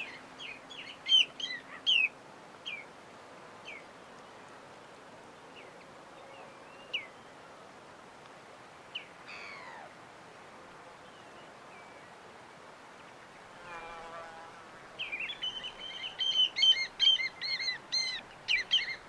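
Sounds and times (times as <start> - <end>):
birds chirping: 0.0 - 2.8, 15.0 - 19.0
background hiss: 0.0 - 19.0.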